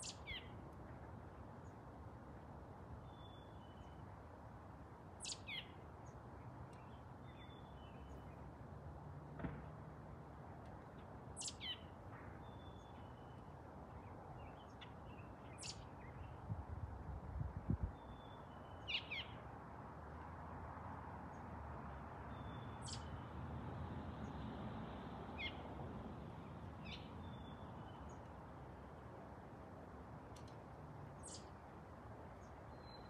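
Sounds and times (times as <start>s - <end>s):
songbirds calling: 0.0s - 0.6s, 5.2s - 8.6s, 11.3s - 16.5s, 17.8s - 19.5s, 22.2s - 23.3s, 25.3s - 25.7s, 26.3s - 29.0s, 30.3s - 33.0s.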